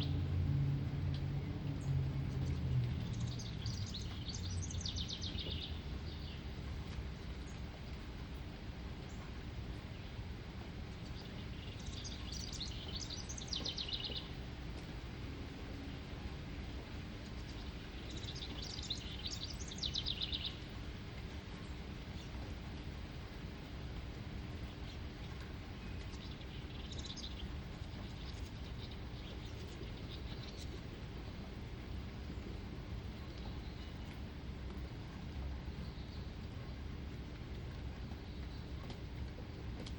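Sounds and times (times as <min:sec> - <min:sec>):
steady outdoor hiss: 0:00.0 - 0:39.9
songbird singing with trill: 0:01.0 - 0:06.5, 0:11.0 - 0:14.4, 0:17.2 - 0:20.7, 0:25.8 - 0:31.0.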